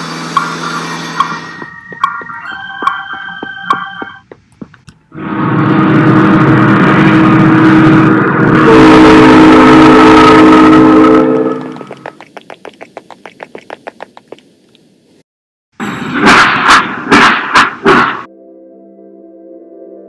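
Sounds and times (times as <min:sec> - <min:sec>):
train wheels clickety-clack: 0:00.3 - 0:04.9
train horn chord: 0:05.1 - 0:11.8.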